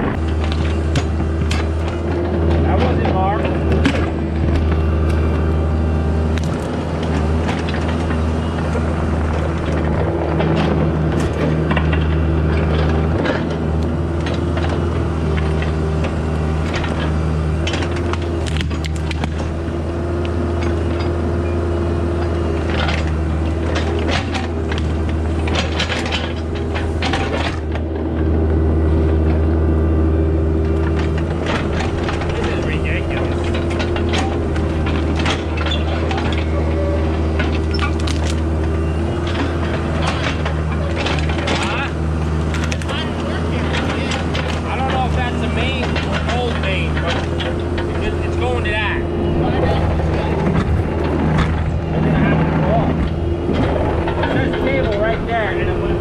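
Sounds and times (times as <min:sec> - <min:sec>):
machine clanks and rattles: 0:00.0 - 0:05.4, 0:06.3 - 0:29.4, 0:30.6 - 0:56.0
diesel engine running: 0:00.0 - 0:56.0.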